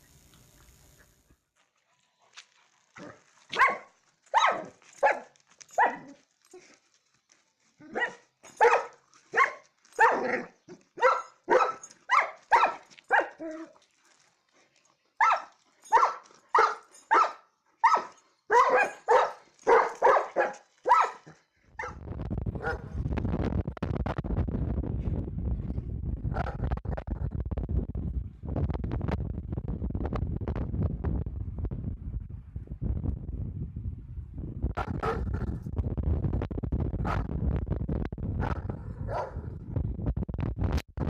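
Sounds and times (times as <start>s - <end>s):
dog barking: 3.5s - 6.1s, 7.9s - 13.4s, 15.2s - 22.0s, 22.6s - 22.9s, 34.8s - 35.3s, 38.4s - 39.5s
wind rumbling on microphone: 21.7s - 41.0s.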